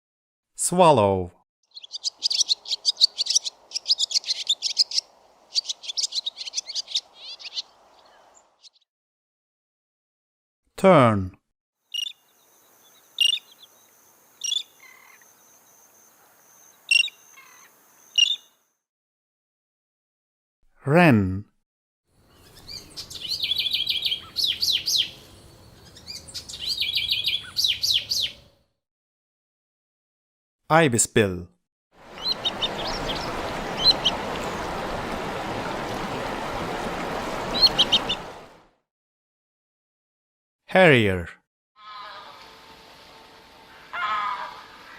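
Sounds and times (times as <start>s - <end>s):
tern calling: 1.7s - 8.4s, 11.9s - 15.4s, 16.2s - 18.5s, 22.3s - 28.5s, 32.0s - 38.5s, 41.8s - 42.6s, 43.7s - 44.9s.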